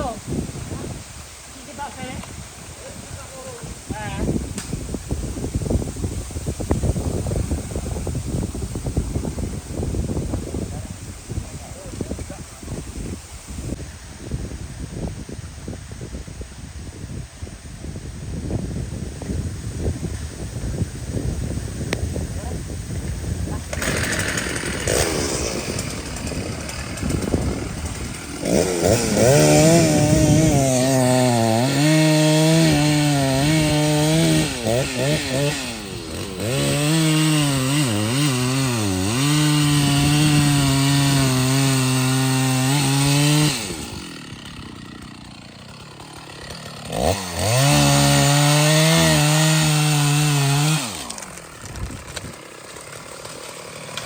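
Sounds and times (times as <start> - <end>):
chainsaw cutting wood: 23.2 - 54.0.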